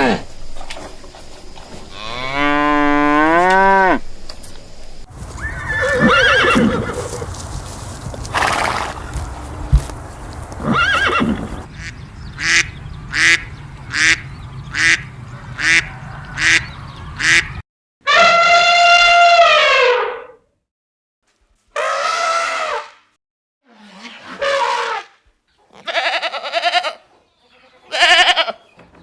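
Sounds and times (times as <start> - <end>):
cow mooing: 1.9 - 4.0
horse whinnying: 5.3 - 7.3, 10.6 - 11.7
horse snorting: 5.5 - 7.4, 8.2 - 11.7.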